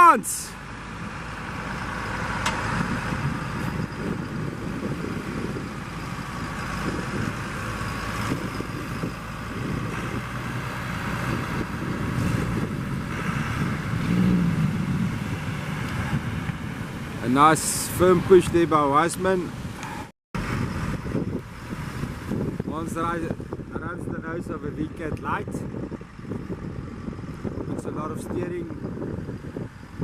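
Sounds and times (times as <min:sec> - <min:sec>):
vehicle engine running: 0:00.5 - 0:18.4.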